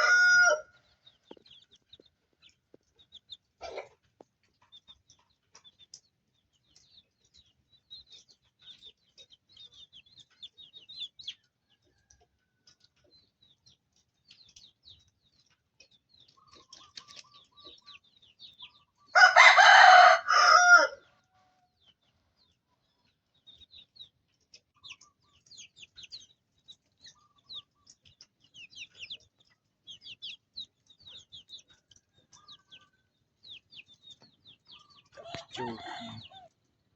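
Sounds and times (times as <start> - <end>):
rooster crowing: 0.0 - 0.7, 19.2 - 21.0, 35.2 - 36.5
chicks peeping: 0.0 - 36.9.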